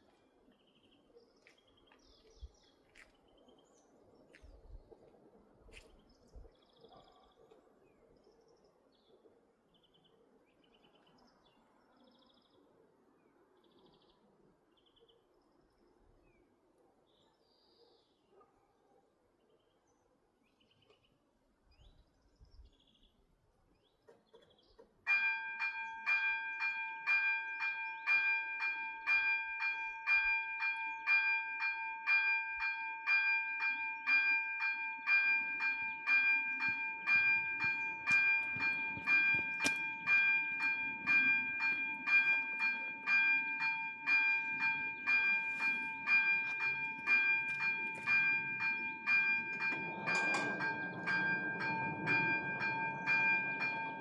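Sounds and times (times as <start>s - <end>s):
level crossing warning bells: 25.1s - 54.0s
approaching train rumble: 46.6s - 54.0s.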